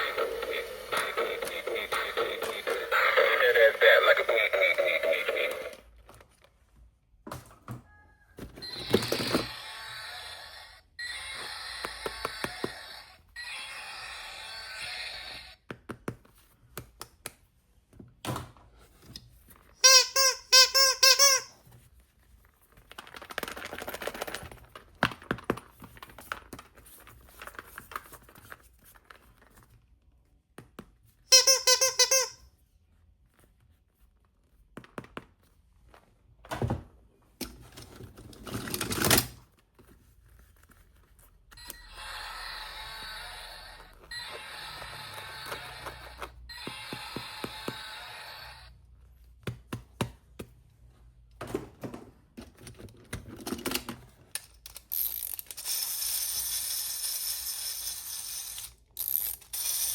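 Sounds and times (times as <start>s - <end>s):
packaging rustle: 22.4s - 25.0s
plastic toy pieces clicking: 53.7s - 59.9s.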